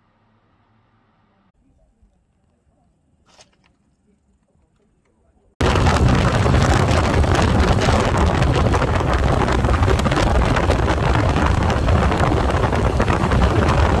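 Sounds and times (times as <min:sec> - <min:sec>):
motorcycle engine: 0:05.6 - 0:14.0
road noise: 0:05.6 - 0:14.0
wind buffeting microphone: 0:05.6 - 0:14.0.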